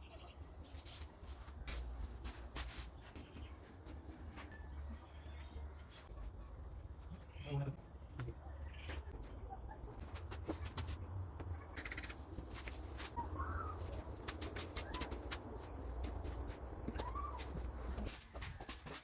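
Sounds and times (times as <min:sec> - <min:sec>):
high insect drone: 0:09.2 - 0:18.1.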